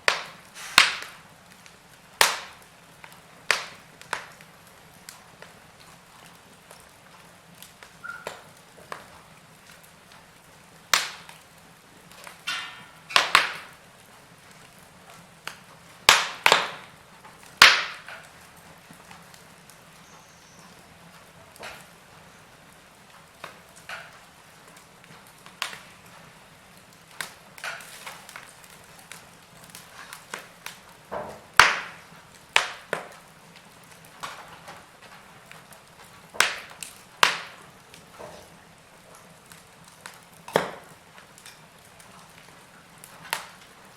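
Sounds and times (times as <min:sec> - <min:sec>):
faint steady hiss: 0:00.0 - 0:43.9
wood fire crackling: 0:00.0 - 0:43.9.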